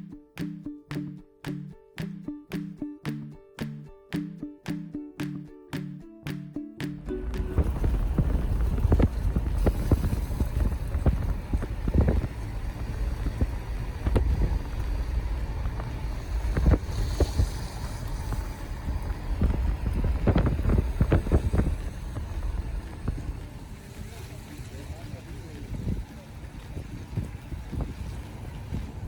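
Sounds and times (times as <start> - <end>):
wind buffeting microphone: 7.0 - 29.0.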